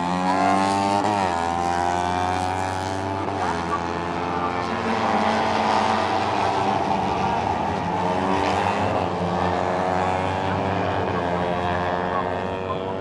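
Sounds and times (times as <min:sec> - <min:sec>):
motorcycles racing at high revs: 0:00.0 - 0:13.0.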